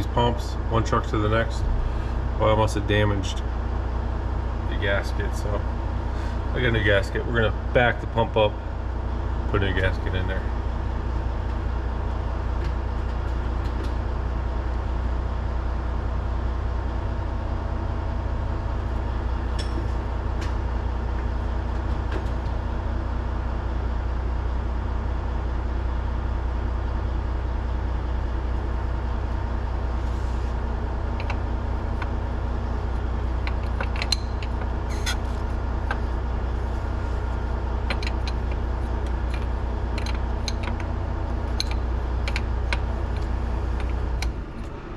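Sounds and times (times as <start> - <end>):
engine idling: 0.0 - 44.9.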